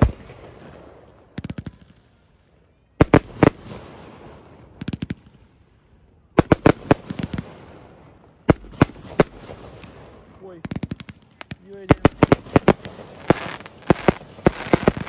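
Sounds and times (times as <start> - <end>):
fireworks bangs: 0.0 - 2.0, 6.4 - 15.0
rumble of fireworks: 0.0 - 15.0.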